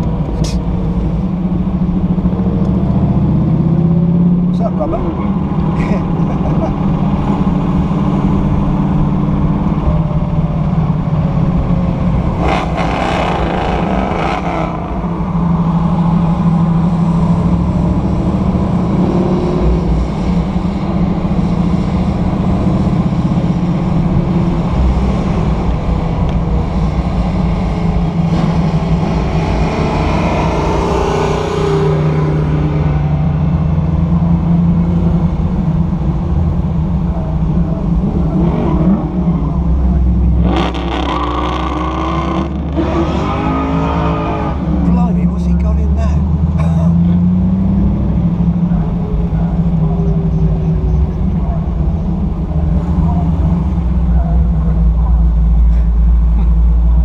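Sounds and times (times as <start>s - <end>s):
car engine running heard from cabin: 0.0s - 12.9s, 33.4s - 41.1s, 44.7s - 57.0s.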